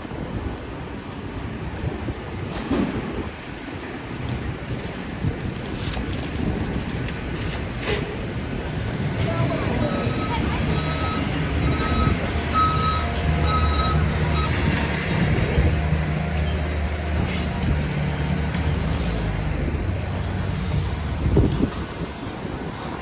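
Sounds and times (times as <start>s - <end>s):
reversing alarm beeping: 9.8s - 14.9s.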